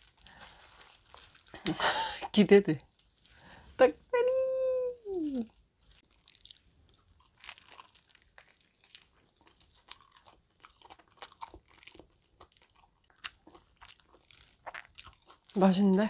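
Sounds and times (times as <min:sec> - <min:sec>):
crunching and chewing fried chicken: 0:00.0 - 0:01.9, 0:05.4 - 0:16.0.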